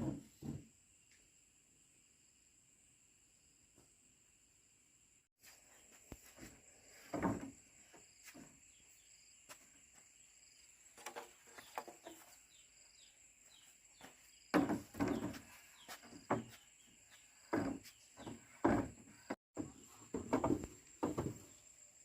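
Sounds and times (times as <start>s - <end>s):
knocks and scrapes: 0.0s - 0.7s, 5.4s - 8.8s, 10.9s - 12.6s, 14.0s - 21.6s.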